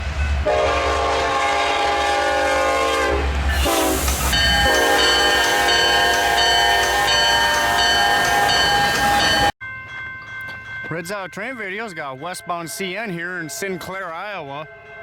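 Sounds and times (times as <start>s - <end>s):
locomotive horn blasts: 0.4s - 9.5s.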